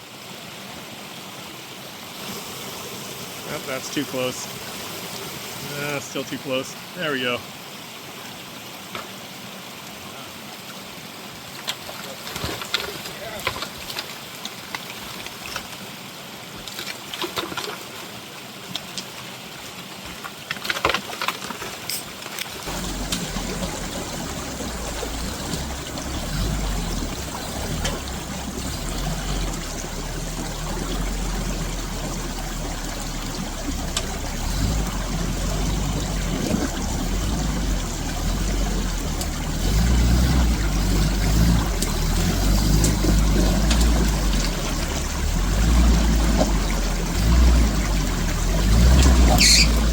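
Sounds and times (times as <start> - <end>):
running water: 0.0 - 49.9
off-road vehicle engine rumbling: 2.2 - 7.4, 22.6 - 49.9.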